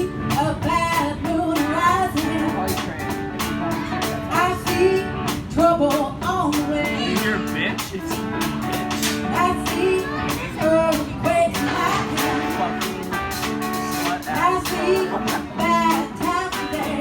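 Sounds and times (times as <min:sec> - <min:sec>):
guitar: 0:00.0 - 0:17.0
steady drum beat: 0:00.0 - 0:17.0
person singing: 0:03.7 - 0:07.7, 0:09.3 - 0:17.0.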